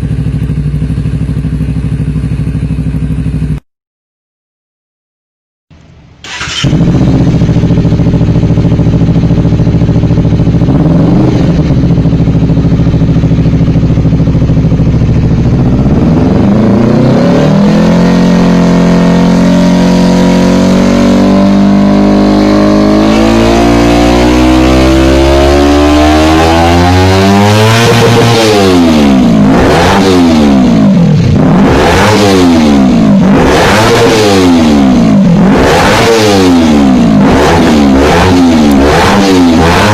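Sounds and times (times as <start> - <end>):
motorcycle engine idling: 0.0 - 3.6, 6.3 - 17.0
motorcycle engine starting up: 6.2 - 17.2.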